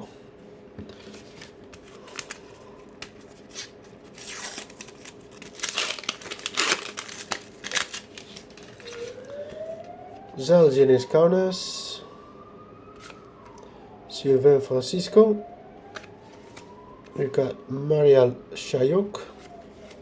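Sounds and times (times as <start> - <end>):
paper packets tearing: 1.0 - 9.6
wrappers crinkling: 1.0 - 9.9.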